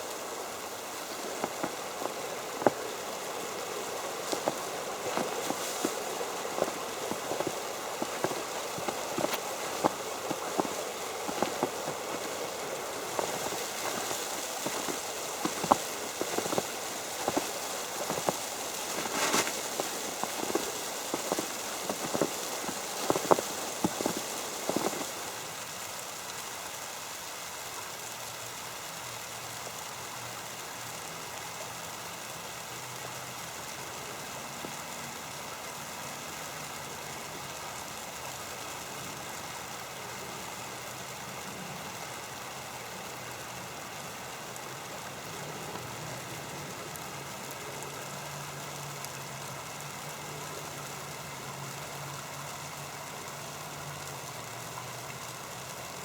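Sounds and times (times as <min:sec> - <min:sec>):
footsteps crunching through snow: 0:00.0 - 0:25.5
snow hissing on an umbrella: 0:00.0 - 0:56.0.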